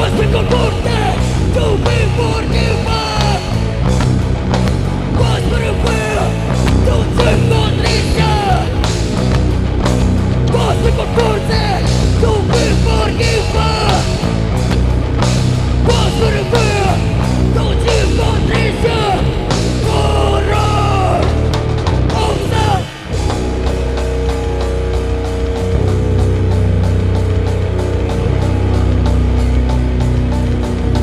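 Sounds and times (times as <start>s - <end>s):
heavy rock band playing live: 0.0s - 31.0s.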